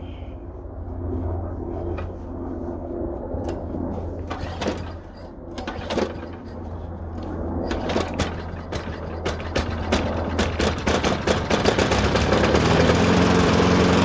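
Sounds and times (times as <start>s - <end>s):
lawn mower recoil starter pulls: 3.4s - 14.0s.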